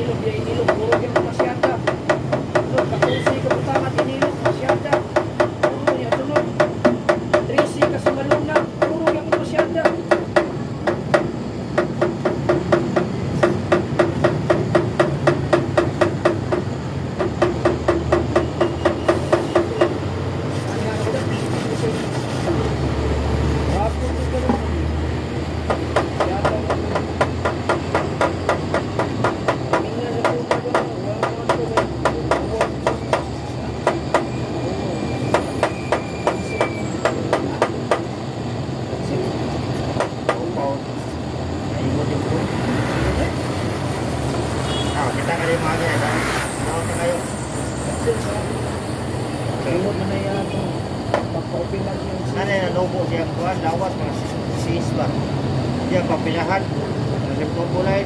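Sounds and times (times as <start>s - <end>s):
hammer tapping on metal: 0.4s - 20.1s, 25.5s - 34.4s, 35.2s - 38.2s, 39.7s - 40.5s.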